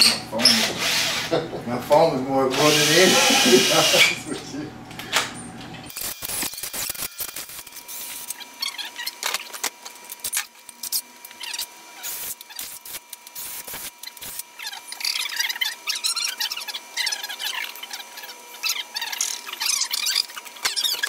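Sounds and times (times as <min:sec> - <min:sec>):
drill bit squealing in metal: 0:00.0 - 0:01.2, 0:02.6 - 0:04.2, 0:14.0 - 0:21.0.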